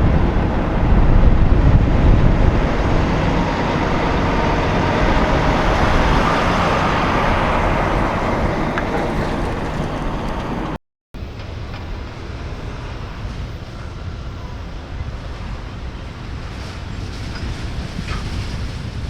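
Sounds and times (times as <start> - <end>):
heavy truck driving past: 0.0 - 14.7
steady road noise: 0.0 - 19.0.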